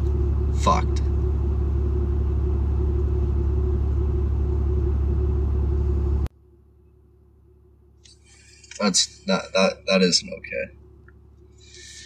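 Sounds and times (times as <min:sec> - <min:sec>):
steady hum: 0:00.0 - 0:12.0
truck rumble from inside cab: 0:00.0 - 0:12.0.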